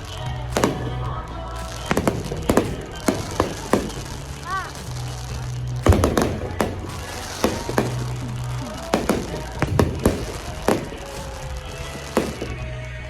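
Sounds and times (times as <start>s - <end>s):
background music: 0.0s - 13.0s
fireworks bangs: 0.0s - 13.0s.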